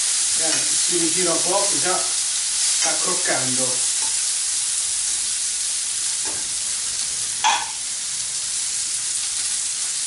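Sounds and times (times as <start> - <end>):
meat sizzling in a frying pan: 0.0 - 10.0.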